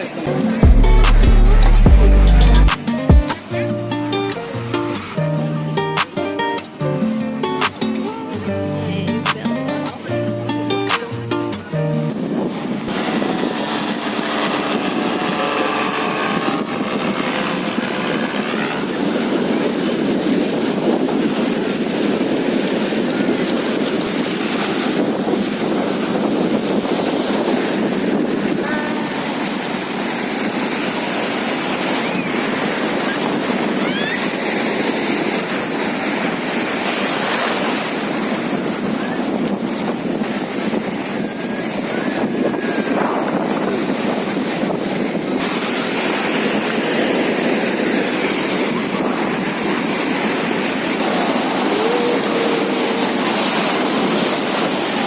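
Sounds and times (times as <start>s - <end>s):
ocean surf breaking: 0.0s - 55.0s
wind buffeting microphone: 9.1s - 55.0s.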